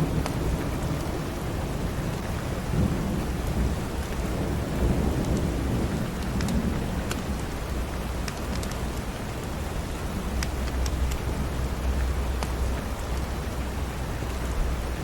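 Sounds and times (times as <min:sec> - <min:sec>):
thunder rumbling: 0:00.0 - 0:08.2
steady rain: 0:00.0 - 0:15.0.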